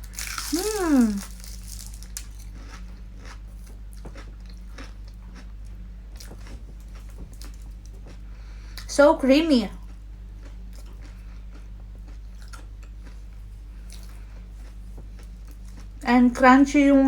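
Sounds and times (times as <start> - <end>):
chewing crunchy pastry: 0.0 - 9.0, 9.7 - 16.3
person humming: 0.5 - 1.3.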